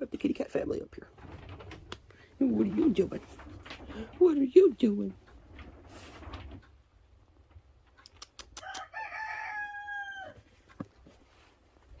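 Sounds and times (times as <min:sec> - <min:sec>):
sharp clicks: 0:07.9 - 0:08.9
rooster crowing: 0:08.6 - 0:10.4.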